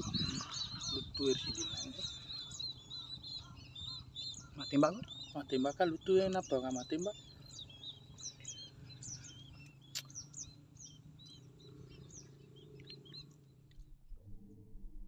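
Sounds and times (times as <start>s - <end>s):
small birds chirping: 0.0s - 14.0s
faint low hum: 7.1s - 15.0s.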